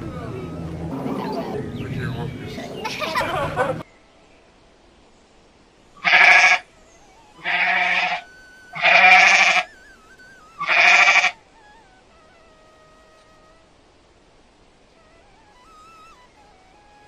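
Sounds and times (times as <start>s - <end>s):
goat bleating: 6.0s - 6.6s, 7.3s - 9.8s, 10.6s - 11.4s.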